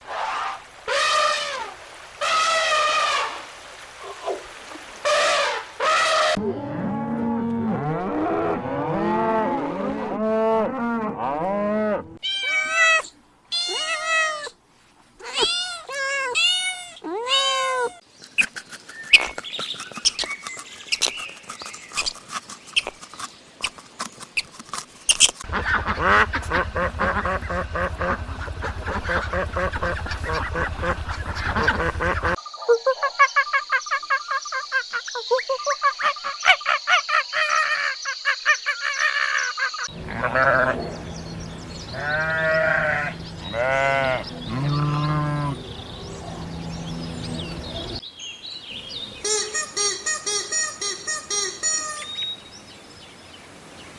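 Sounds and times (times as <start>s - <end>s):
rising and falling animal calls: 5.1s - 6.8s, 7.7s - 14.6s, 15.2s - 22.2s, 25.4s - 35.0s, 38.6s - 48.0s, 49.0s - 52.2s
bright animal calls: 12.2s - 14.6s, 15.2s - 22.2s, 25.1s - 48.0s, 49.2s - 52.2s
quick regular animal calls: 12.2s - 32.4s, 33.0s - 48.0s, 49.1s - 52.3s
low buzzing: 25.4s - 32.4s, 39.9s - 48.0s.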